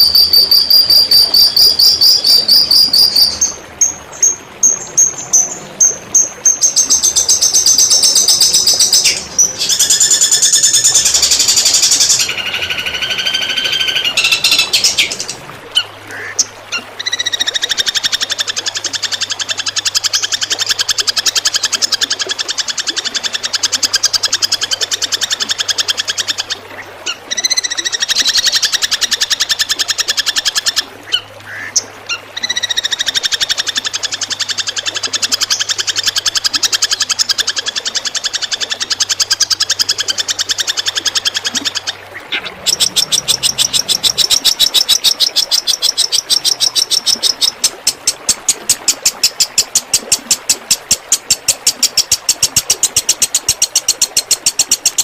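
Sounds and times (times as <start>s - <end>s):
songbird rattling song: 0.0s - 15.4s, 27.1s - 55.0s.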